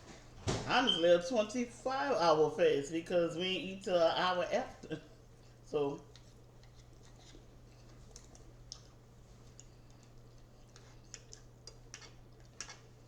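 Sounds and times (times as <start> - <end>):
low electrical hum: 0.0 - 13.0
mouth clicks of chewing: 7.8 - 12.9.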